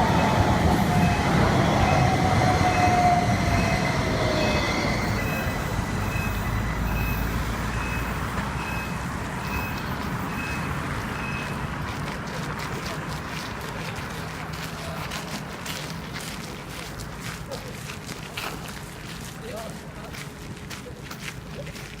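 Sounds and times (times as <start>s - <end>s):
tram motor whine: 0.0s - 11.6s
crossing warning signal tones: 0.0s - 11.7s
tram rumble: 0.0s - 22.0s.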